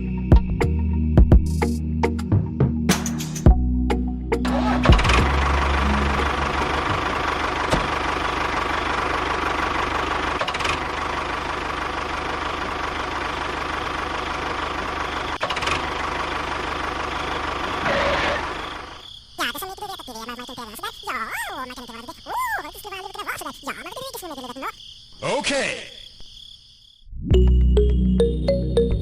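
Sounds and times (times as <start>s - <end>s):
small motor whining: 17.6s - 19.0s.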